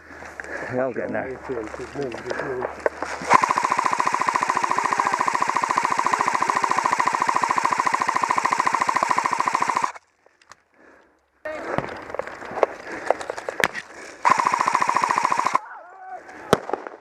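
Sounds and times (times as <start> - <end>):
airsoft gun full-auto rattle: 3.0 - 10.0, 14.2 - 15.6
gearbox whine: 3.2 - 10.0.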